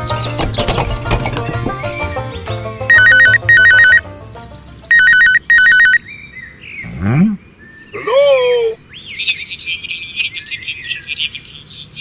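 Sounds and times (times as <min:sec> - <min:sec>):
background music: 0:00.0 - 0:05.8
warbling telephone ringtone: 0:02.9 - 0:04.1, 0:04.9 - 0:06.0.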